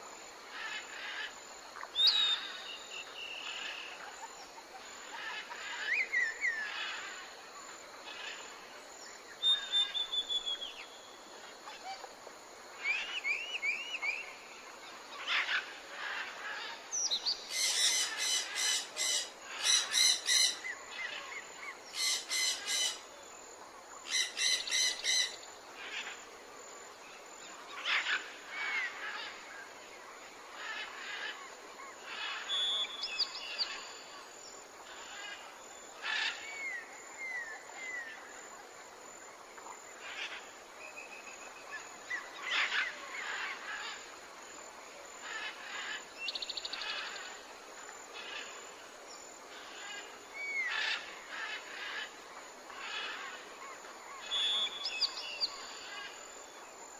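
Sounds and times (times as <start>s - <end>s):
rapid repeated bird calls: 12.8s - 23.2s, 24.0s - 26.3s, 39.6s - 44.2s, 45.2s - 56.8s.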